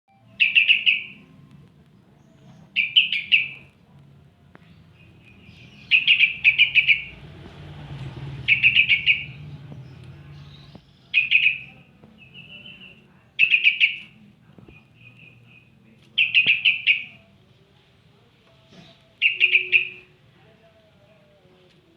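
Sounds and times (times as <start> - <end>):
bulbul chattering calls: 0.4 - 1.2, 2.8 - 3.7, 5.0 - 7.3, 8.4 - 14.1, 16.2 - 17.2, 19.2 - 20.1.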